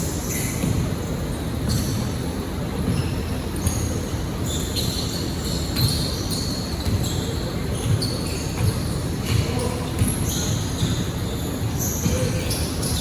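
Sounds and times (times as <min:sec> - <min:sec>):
sneakers squeaking on court: 0:00.1 - 0:13.0
basketball dribbling thumps: 0:06.8 - 0:11.2, 0:11.9 - 0:12.6.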